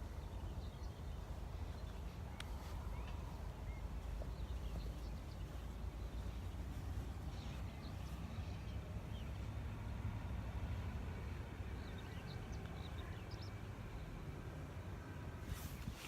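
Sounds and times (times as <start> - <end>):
faint bird chirps: 0.0 - 9.4
steady low rumble: 0.0 - 16.0.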